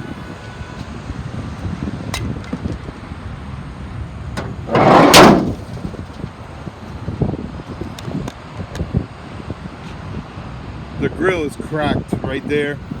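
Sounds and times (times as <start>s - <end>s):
metal hood slamming shut: 4.4s - 5.9s.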